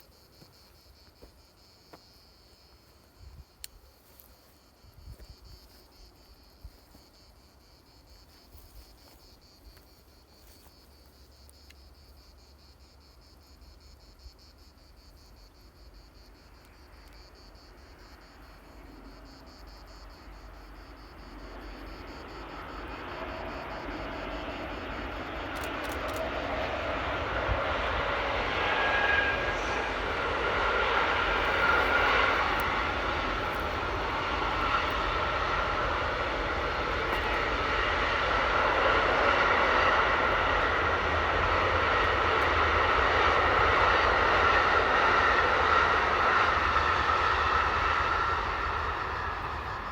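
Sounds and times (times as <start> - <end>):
faint insect chirring: 0.0 - 40.8
approaching engine: 17.5 - 49.9.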